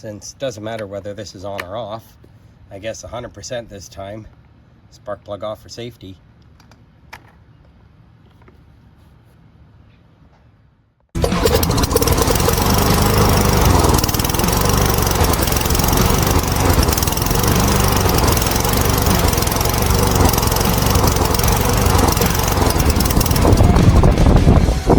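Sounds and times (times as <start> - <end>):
string trimmer engine running: 11.2 - 24.9.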